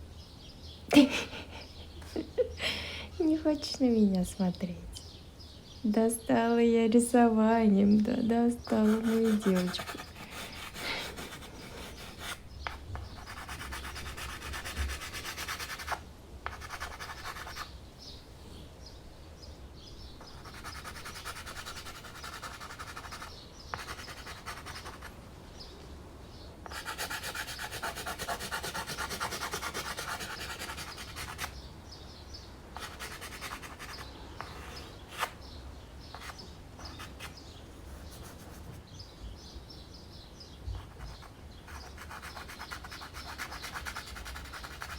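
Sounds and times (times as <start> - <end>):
pastel scratching on canvas: 8.8 - 17.7, 20.2 - 25.1, 26.7 - 31.6, 32.8 - 35.4, 36.1 - 38.8, 40.8 - 44.9.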